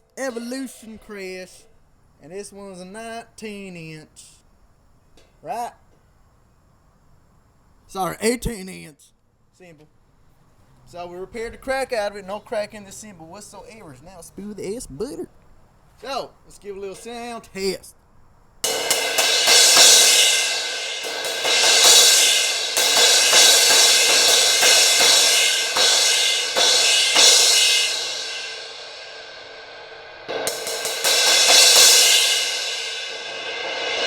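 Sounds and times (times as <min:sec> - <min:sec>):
crash cymbal ringing: 0:18.6 - 0:34.0.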